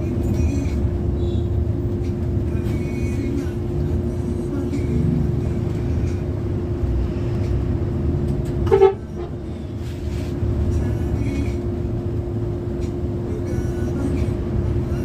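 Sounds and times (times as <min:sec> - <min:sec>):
bus rumbling: 0:00.0 - 0:15.0
vehicle horn toot: 0:08.6 - 0:09.4.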